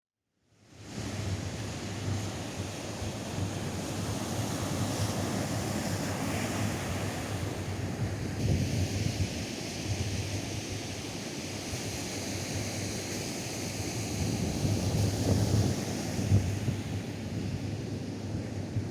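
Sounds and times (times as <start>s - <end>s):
wind gusting on microphone: 7.6s - 10.8s, 14.0s - 18.9s.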